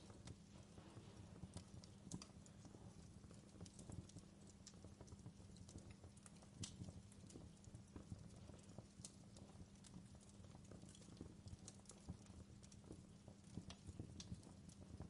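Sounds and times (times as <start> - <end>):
low steady rumble: 0.0 - 10.4
fireplace crackling: 0.0 - 15.0.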